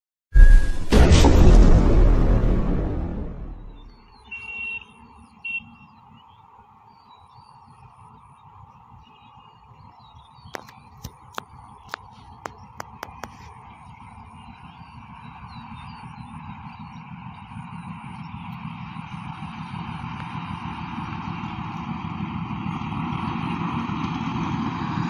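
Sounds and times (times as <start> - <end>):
short high-pitched tones: 0.4 - 1.0
approaching train rumble: 0.4 - 4.2, 12.2 - 25.0
birds chirping: 3.7 - 18.6.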